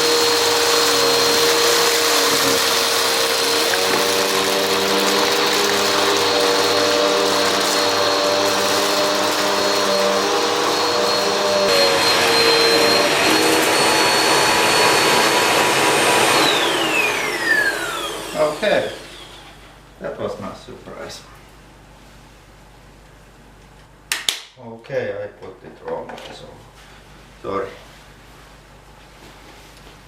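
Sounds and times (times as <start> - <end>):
vacuum cleaner motor whining: 0.0 - 19.8.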